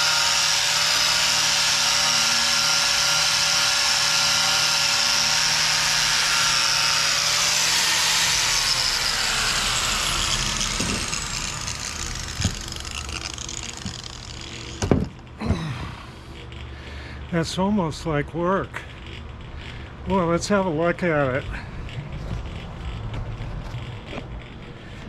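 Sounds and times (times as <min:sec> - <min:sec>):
angle grinder wire brush on metal: 0:00.0 - 0:14.9.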